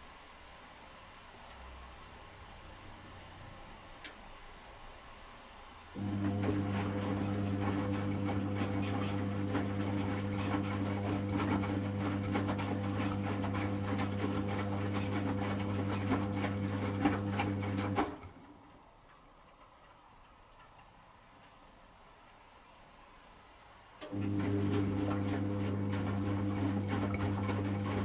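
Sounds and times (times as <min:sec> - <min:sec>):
washing machine motor humming: 0:06.0 - 0:18.7, 0:24.0 - 0:28.0
wet laundry tumbling and splashing: 0:06.0 - 0:18.7, 0:24.1 - 0:28.0.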